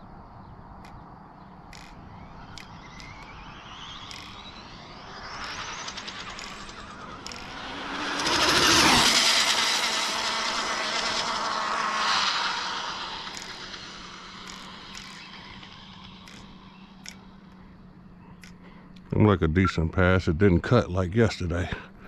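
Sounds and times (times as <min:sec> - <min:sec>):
electric rc car motor whine: 0:01.7 - 0:17.5.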